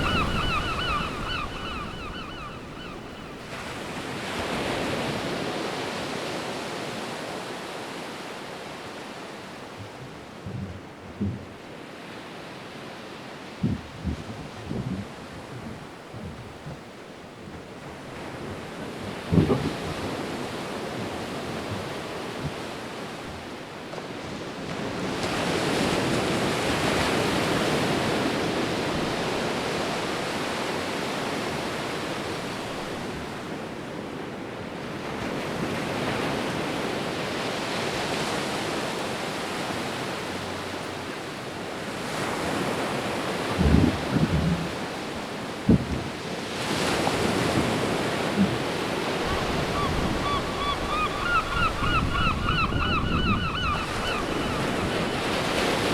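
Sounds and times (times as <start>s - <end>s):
wind buffeting microphone: 0.0s - 5.6s, 13.6s - 23.6s, 42.5s - 55.9s
sea surging: 0.0s - 55.9s.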